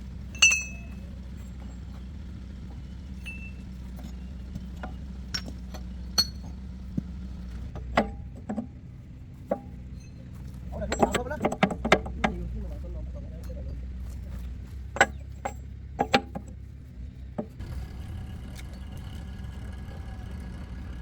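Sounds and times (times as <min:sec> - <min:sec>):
steady low hum: 0:00.0 - 0:21.0
metal tools clinking: 0:00.3 - 0:02.0, 0:03.1 - 0:06.6, 0:09.6 - 0:12.2, 0:13.4 - 0:16.5.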